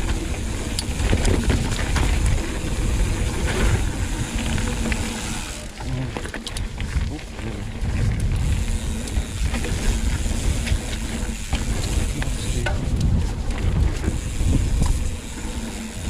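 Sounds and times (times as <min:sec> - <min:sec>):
tyres hissing on loose dirt: 0:00.0 - 0:06.1, 0:08.3 - 0:13.4, 0:14.0 - 0:16.0
bike rattling: 0:00.0 - 0:16.0
wind buffeting microphone: 0:00.0 - 0:16.0.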